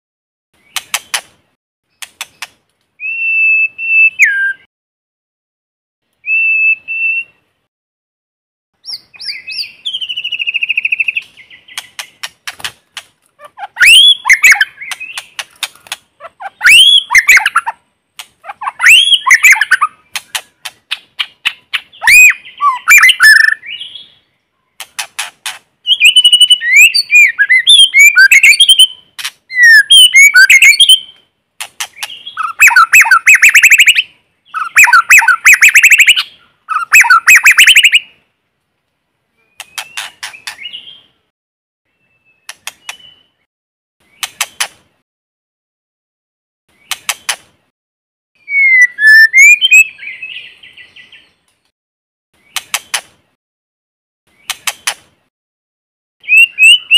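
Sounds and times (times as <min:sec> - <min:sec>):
bird singing varied phrases: 0:01.9 - 0:04.7, 0:06.2 - 0:07.6, 0:08.8 - 0:12.3, 0:13.5 - 0:25.2, 0:25.8 - 0:38.2, 0:39.3 - 0:41.3, 0:41.9 - 0:44.7, 0:48.4 - 0:51.5, 0:56.2 - 0:56.9.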